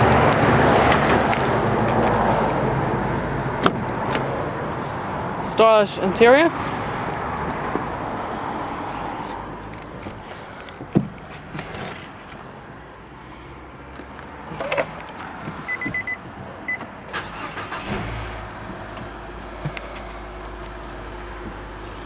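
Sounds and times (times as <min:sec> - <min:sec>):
car engine starting: 0:06.7 - 0:22.0
handling clicks: 0:09.3 - 0:12.5
keys jangling: 0:09.6 - 0:12.5.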